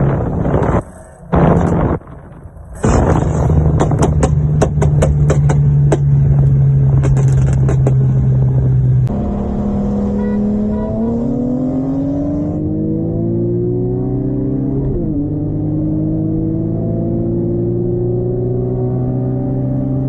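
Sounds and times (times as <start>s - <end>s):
car engine running hard: 0.0s - 20.0s
exhaust cracks and pops: 0.1s - 8.7s.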